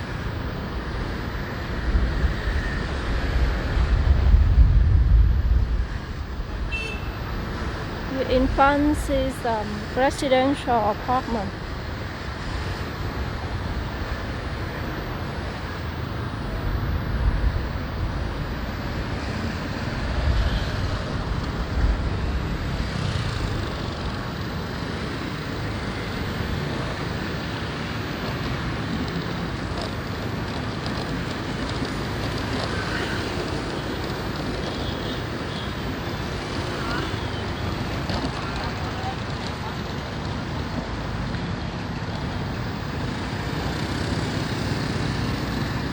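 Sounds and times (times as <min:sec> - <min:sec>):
traffic noise: 0:00.0 - 0:45.9
wind buffeting microphone: 0:01.4 - 0:10.2.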